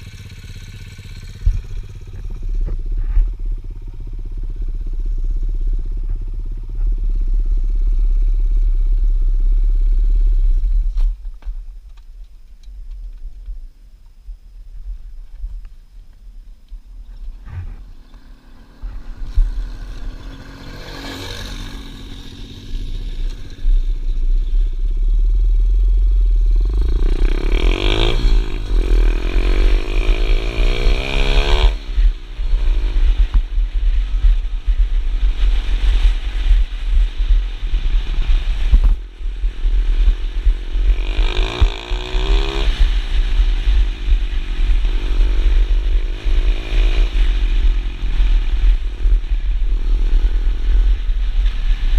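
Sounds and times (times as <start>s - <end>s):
pit bike engine revving: 17.4s - 24.1s, 25.6s - 51.9s.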